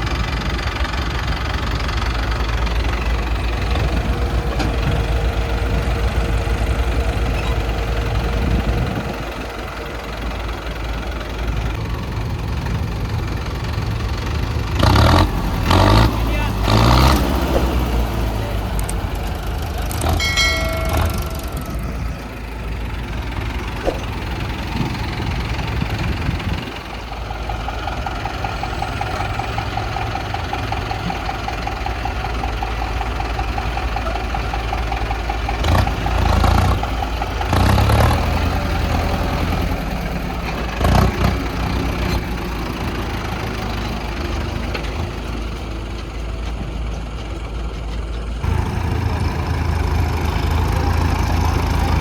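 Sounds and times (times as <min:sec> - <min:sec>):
diesel engines rumbling: 0:00.0 - 0:52.0
whining tone: 0:18.4 - 0:26.6
clattering bursts: 0:23.2 - 0:26.2.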